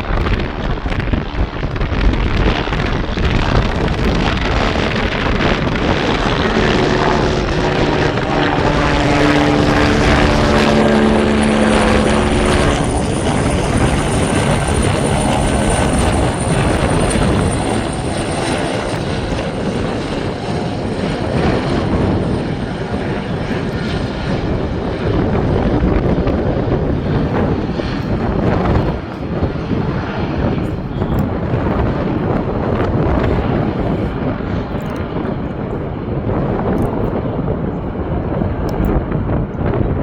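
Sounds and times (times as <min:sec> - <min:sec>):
high thin engine whine: 0:00.0 - 0:31.2
aircraft passing close: 0:00.0 - 0:40.0.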